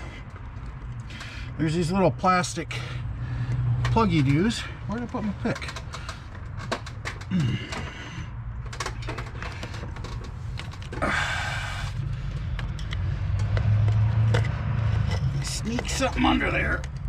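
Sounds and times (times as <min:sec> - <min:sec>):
clicks and knocks of tools: 0:05.5 - 0:08.0, 0:12.4 - 0:16.2.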